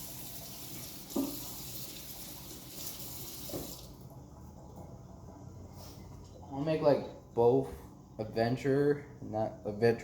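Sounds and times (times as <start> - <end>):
tap running into sink: 0.6 - 4.0.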